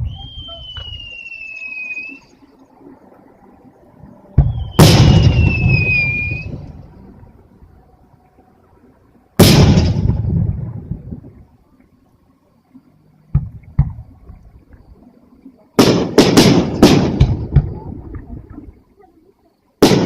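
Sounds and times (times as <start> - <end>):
firework whistle: 0.0 - 2.4, 4.3 - 6.9
firework boom with rumbling echo: 4.4 - 6.9, 9.4 - 11.4, 13.3 - 14.1, 15.8 - 18.5.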